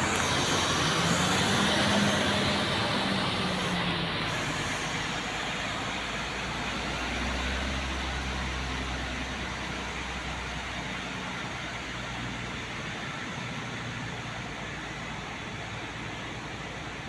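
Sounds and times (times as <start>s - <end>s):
road noise: 0.0s - 11.4s
diesel truck engine drone: 0.0s - 17.0s.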